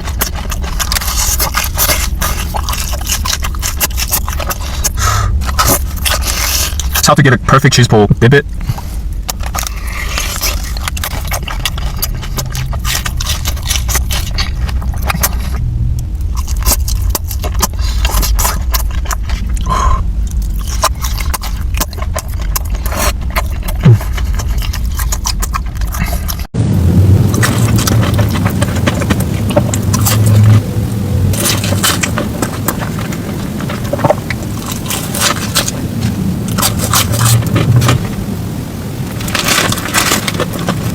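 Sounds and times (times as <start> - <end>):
crunchy chewing: 0.0 - 40.9
steady low rumble: 0.0 - 40.9.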